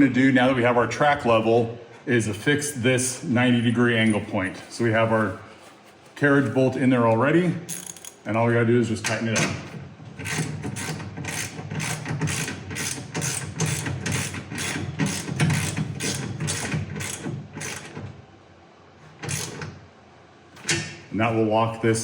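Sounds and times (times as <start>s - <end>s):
ratchet wrench clicking: 7.7s - 8.2s, 10.2s - 17.8s.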